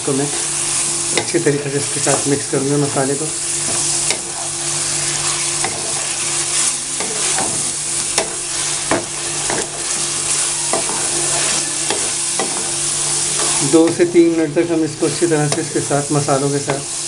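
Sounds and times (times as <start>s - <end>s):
food sizzling in oil: 0.0s - 17.0s
spatula scraping and knocking pan: 3.5s - 15.9s.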